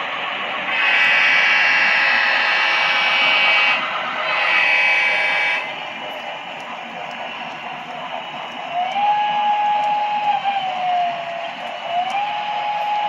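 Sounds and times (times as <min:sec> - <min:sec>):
model train horn through small speaker: 0:00.7 - 0:05.8.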